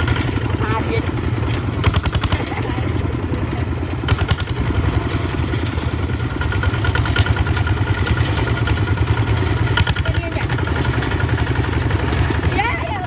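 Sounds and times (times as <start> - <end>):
sharp clattering knocks: 0.0 - 12.6
tractor engine running: 0.0 - 13.0.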